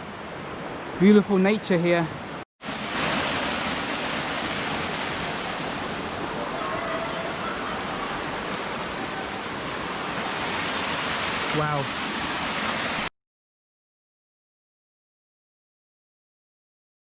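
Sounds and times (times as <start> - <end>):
stream water flowing over rocks: 2.6 - 13.1.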